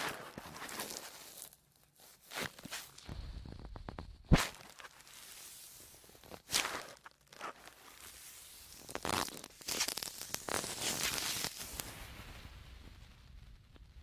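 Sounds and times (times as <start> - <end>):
sponges crunching and scrunching: 0.0 - 3.1, 4.3 - 11.8.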